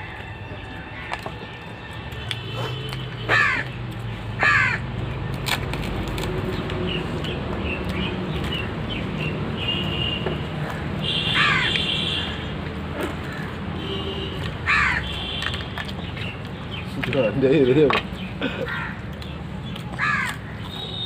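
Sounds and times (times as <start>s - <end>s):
crow cawing: 3.3s - 3.7s, 4.4s - 4.9s, 10.7s - 12.4s, 14.6s - 15.1s, 18.4s - 19.0s, 20.0s - 20.5s.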